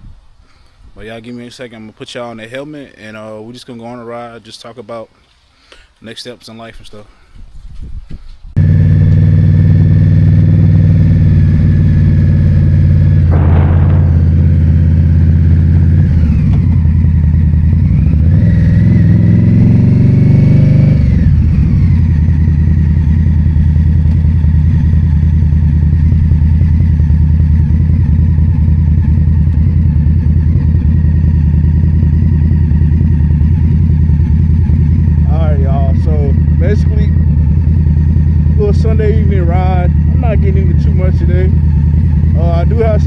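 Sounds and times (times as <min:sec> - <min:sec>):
motorcycle engine running: 0:08.6 - 0:43.0.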